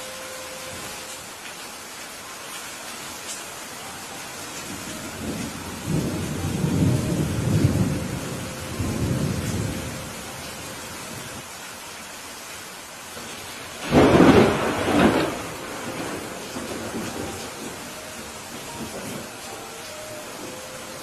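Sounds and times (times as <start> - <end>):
steady rain: 0.0 - 21.0
low thunder rumbling: 4.7 - 11.4, 13.8 - 19.5
loud thunderclap: 13.8 - 17.7.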